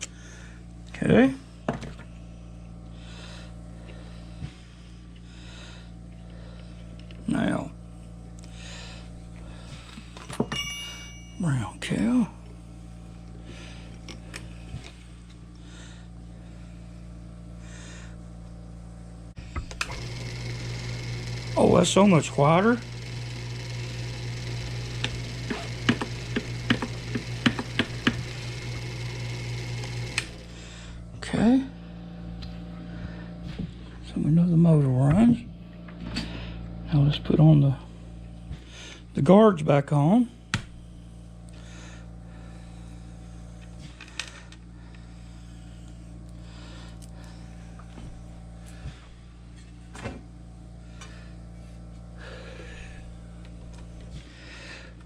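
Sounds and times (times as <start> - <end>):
machine low hum: 0.0 - 55.0
electric motor humming: 12.7 - 33.4.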